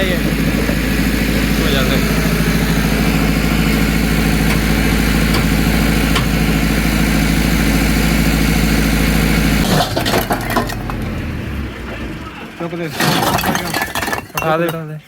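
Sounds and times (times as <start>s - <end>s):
tractor engine idling: 0.0s - 14.7s
hard clattering knocks: 3.0s - 6.8s, 9.6s - 11.0s, 12.9s - 14.7s.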